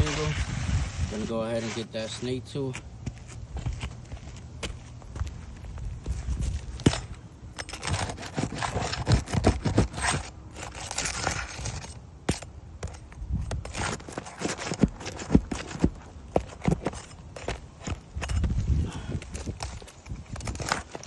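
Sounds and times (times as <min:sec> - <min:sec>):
scraping on roof shingles: 0:06.1 - 0:21.0
footfalls on roof shingles: 0:07.8 - 0:21.0.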